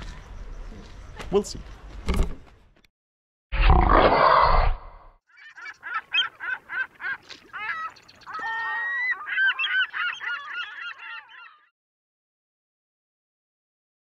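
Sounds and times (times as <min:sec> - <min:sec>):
bird honking calls: 0:05.4 - 0:11.7.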